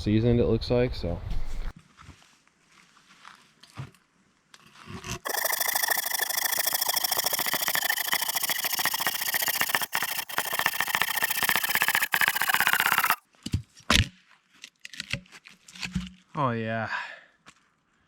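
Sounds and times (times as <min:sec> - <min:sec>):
saw cutting through log: 0:05.2 - 0:13.2.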